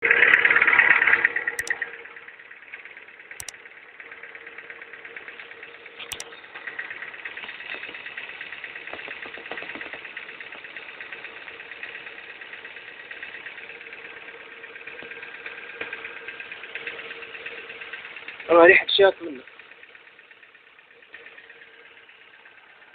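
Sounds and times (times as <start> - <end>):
car engine idling: 0.0 - 22.9
rapid engine ticking: 0.0 - 22.9.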